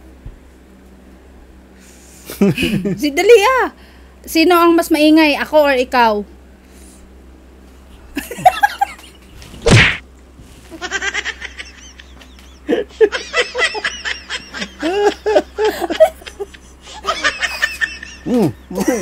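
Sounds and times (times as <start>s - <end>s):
people laughing: 2.3s - 3.0s, 8.2s - 9.2s, 10.8s - 19.0s
face hitting pile of flour: 9.6s - 10.0s.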